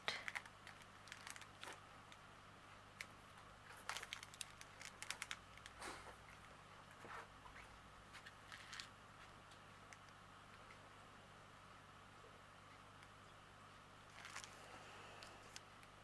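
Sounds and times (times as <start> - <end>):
plastic bags crinkling: 0.1 - 1.8, 3.7 - 6.5, 14.1 - 14.7.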